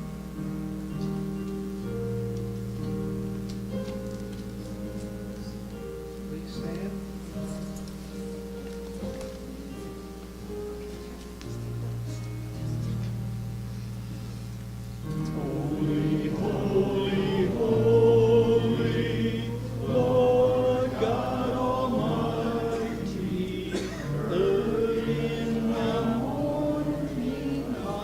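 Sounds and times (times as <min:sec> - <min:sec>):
congregation singing a hymn: 0:15.0 - 0:28.0.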